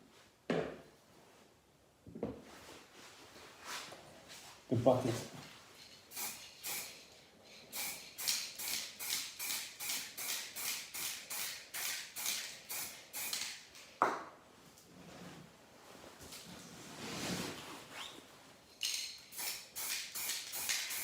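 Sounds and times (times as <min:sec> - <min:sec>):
spray paint can hissing: 0:06.1 - 0:07.0, 0:07.7 - 0:13.8, 0:18.8 - 0:21.0.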